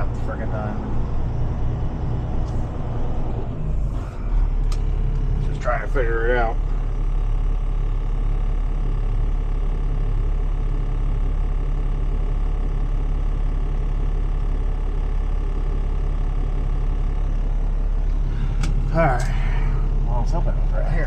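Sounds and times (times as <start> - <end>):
road noise: 0.0 - 7.1, 17.9 - 21.0
truck engine rumble: 0.0 - 21.0.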